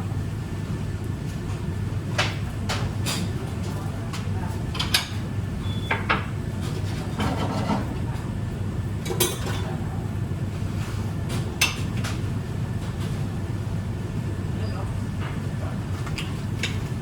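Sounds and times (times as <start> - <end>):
dishes and utensils clinking: 9.0 - 9.8.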